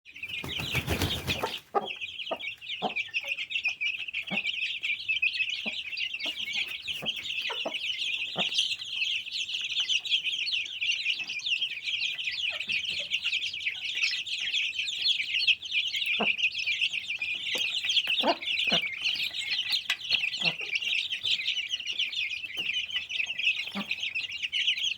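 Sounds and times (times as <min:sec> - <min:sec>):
chicks peeping: 0:00.1 - 0:24.9.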